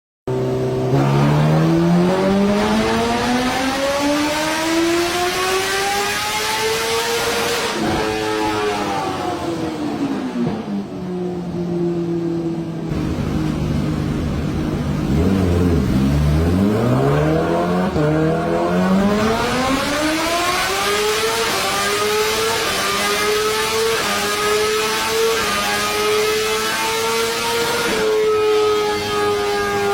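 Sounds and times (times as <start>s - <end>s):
motorcycle engine accelerating: 0.3s - 29.9s
steady low hum: 12.4s - 16.7s.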